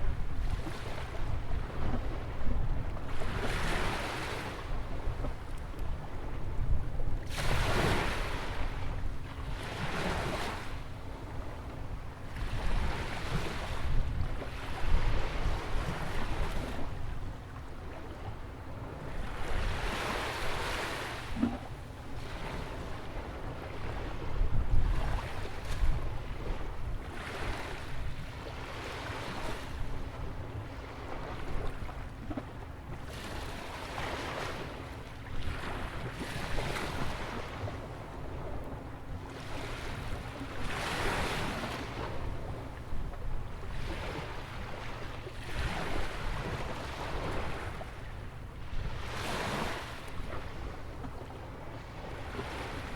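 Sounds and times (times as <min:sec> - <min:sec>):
wind rumble on microphone: 0:00.0 - 0:52.9
ocean waves breaking on beach: 0:03.1 - 0:05.2, 0:07.2 - 0:10.7, 0:33.0 - 0:38.6, 0:39.2 - 0:52.9.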